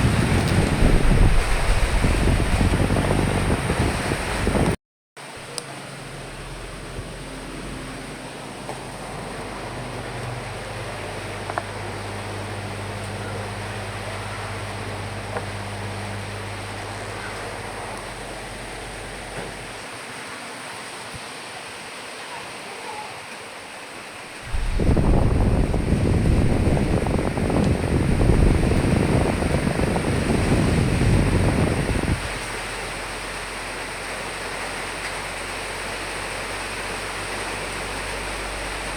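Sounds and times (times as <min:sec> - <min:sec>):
wind gust rushing: 0:00.0 - 0:04.8, 0:24.4 - 0:32.4
rain and wind: 0:00.0 - 0:38.9
low steady hum: 0:05.5 - 0:19.8, 0:24.4 - 0:33.5.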